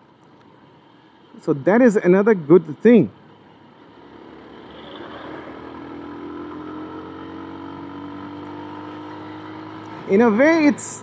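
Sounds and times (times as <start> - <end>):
motorcycle engine at speed: 4.0 - 10.7.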